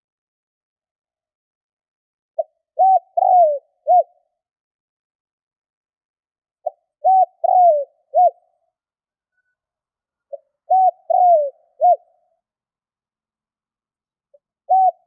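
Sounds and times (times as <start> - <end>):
dove cooing: 2.4 - 4.3, 6.6 - 8.5, 10.3 - 12.2, 14.7 - 15.0.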